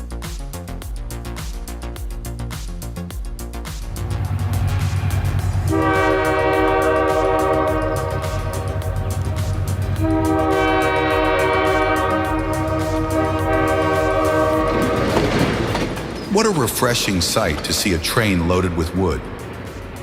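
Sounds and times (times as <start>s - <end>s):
moving train rumble: 3.4s - 20.0s
train horn blasts: 4.6s - 15.7s.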